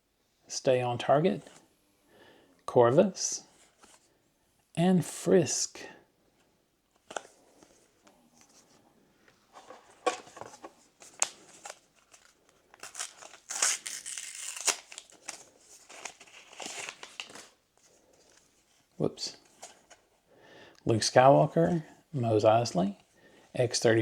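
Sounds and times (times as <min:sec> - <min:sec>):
foil pack crinkling and tearing: 0:11.1 - 0:17.6.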